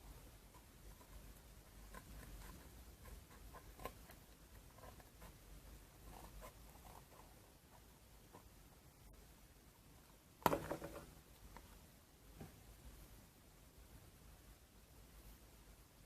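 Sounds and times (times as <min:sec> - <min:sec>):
faint clicks and scratching: 0:00.0 - 0:08.8.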